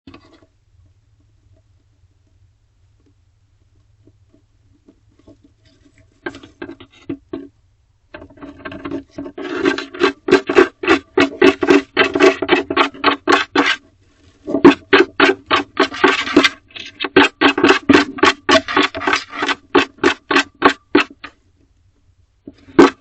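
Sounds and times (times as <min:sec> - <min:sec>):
owl scratching wooden wall: 0:03.7 - 0:21.4, 0:22.5 - 0:23.0.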